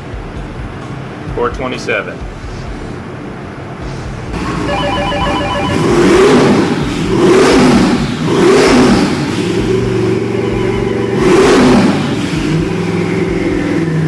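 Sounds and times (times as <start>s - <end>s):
engine revving: 2.2s - 14.0s
rapid pulsing beep: 4.4s - 7.3s, 9.6s - 13.7s.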